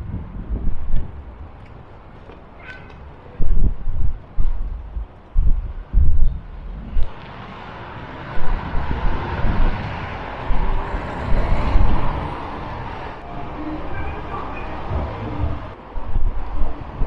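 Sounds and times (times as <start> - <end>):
road traffic passing: 0.0 - 17.0
wind buffeting microphone: 0.0 - 17.0.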